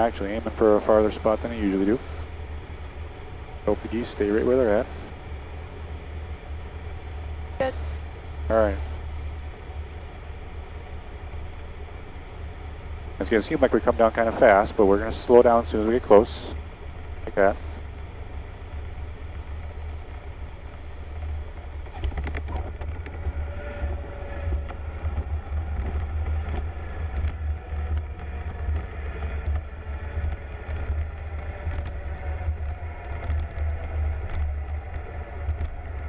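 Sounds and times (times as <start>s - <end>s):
airplane engine drone: 0.0s - 36.0s
faint clicks: 19.7s - 36.0s.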